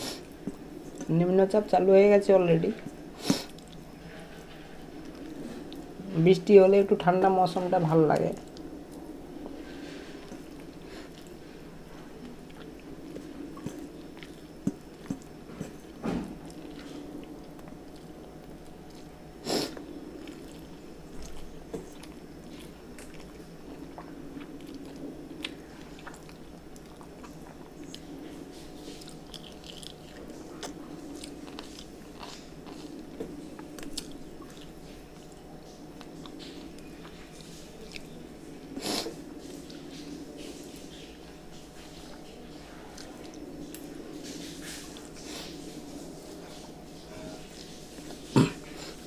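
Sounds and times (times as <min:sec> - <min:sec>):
steady low hum: 0:00.0 - 0:49.0
person chewing food: 0:02.8 - 0:06.0, 0:08.4 - 0:38.2.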